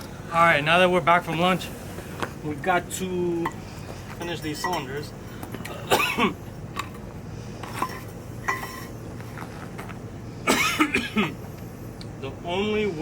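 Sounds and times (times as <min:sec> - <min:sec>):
metal ringing: 0:03.3 - 0:07.0, 0:07.6 - 0:09.0
metal tools clinking: 0:03.4 - 0:05.8, 0:07.6 - 0:09.0.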